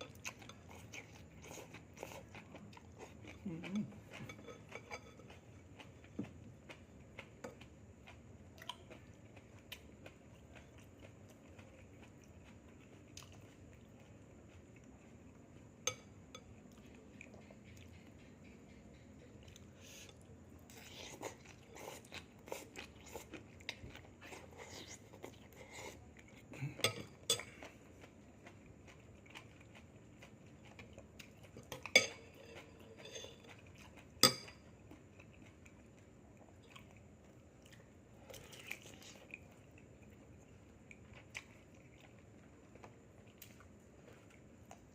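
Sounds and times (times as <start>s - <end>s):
person chewing crunchy food: 0.0s - 44.9s.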